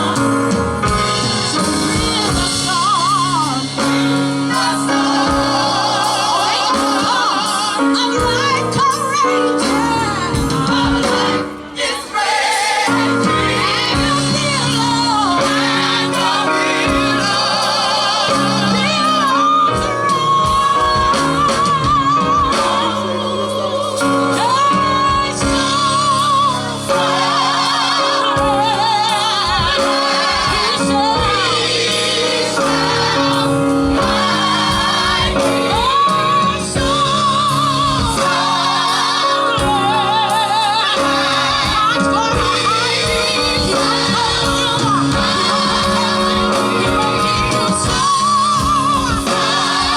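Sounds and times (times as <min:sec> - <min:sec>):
gospel group singing: 0:00.0 - 0:49.9
band playing sustained chords: 0:12.8 - 0:49.9.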